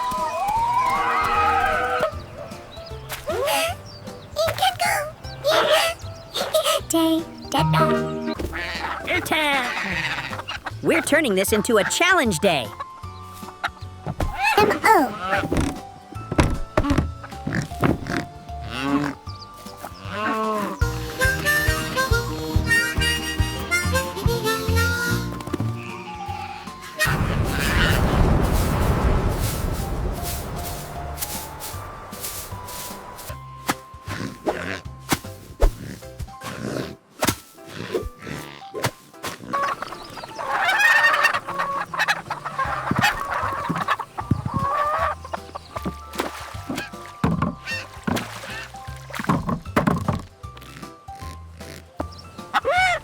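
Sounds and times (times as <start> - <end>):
bright cartoon background music: 0.0 - 53.0
chickens clucking: 0.9 - 15.8, 39.4 - 48.6, 51.7 - 53.0.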